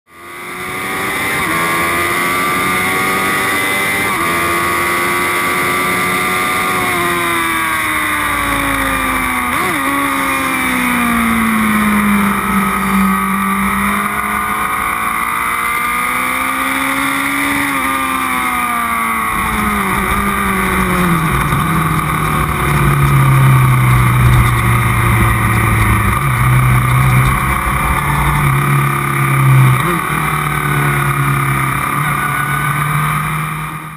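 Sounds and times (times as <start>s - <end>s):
race car engine: 0.1s - 33.9s
wind and road noise: 0.1s - 33.9s
heavy low rumble: 19.3s - 32.9s.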